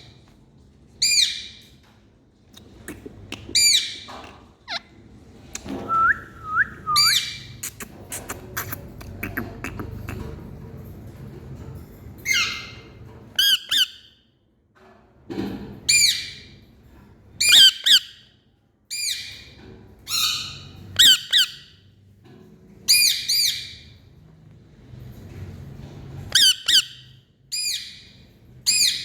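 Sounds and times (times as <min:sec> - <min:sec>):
parrot squawking: 0:02.8 - 0:04.1, 0:26.3 - 0:27.0.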